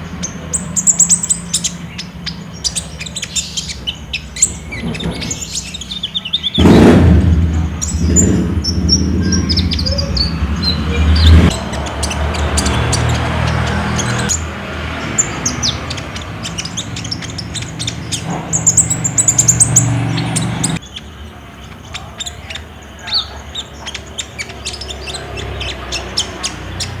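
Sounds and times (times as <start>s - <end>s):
bird chirping and trilling: 0.0s - 27.0s
low hum: 6.6s - 11.6s.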